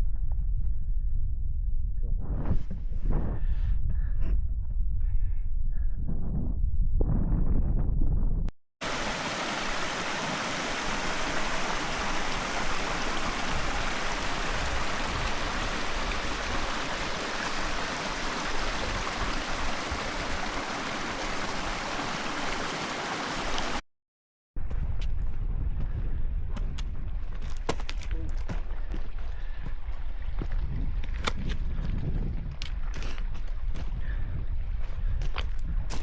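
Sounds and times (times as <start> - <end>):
rushing stream water: 8.8 - 23.8.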